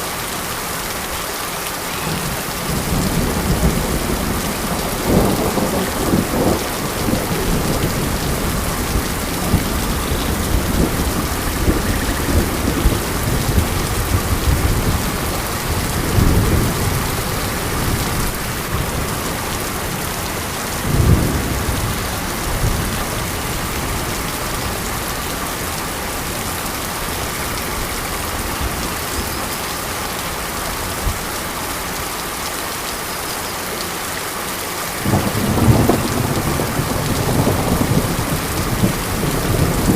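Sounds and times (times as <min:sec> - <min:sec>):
heavy rain hissing: 0:00.0 - 0:39.9
low rumbles of thunder: 0:02.2 - 0:25.1, 0:35.0 - 0:39.9.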